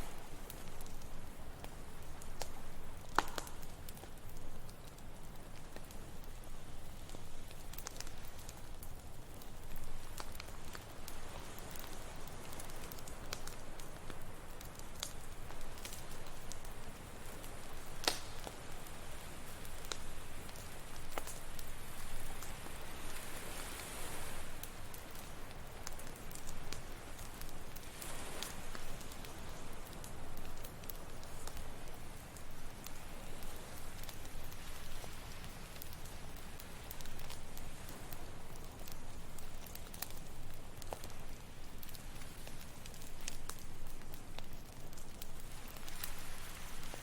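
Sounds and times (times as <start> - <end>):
campfire crackling and popping: 0.0 - 47.0
ocean waves: 15.6 - 38.9, 45.4 - 47.0.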